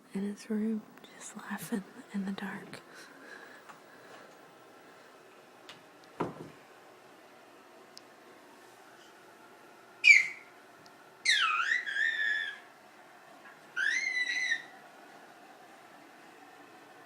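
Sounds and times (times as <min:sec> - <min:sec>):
pet bird whistling calls: 0:10.0 - 0:10.5, 0:11.2 - 0:12.6, 0:13.8 - 0:14.7.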